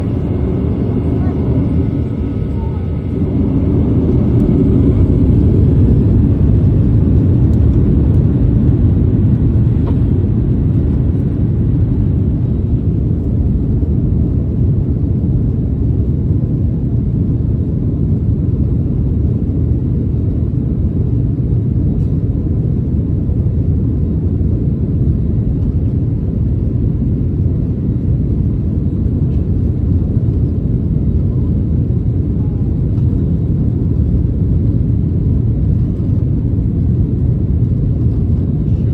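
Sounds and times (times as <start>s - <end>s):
jet engines rumbling: 0.0s - 16.9s, 20.8s - 38.9s.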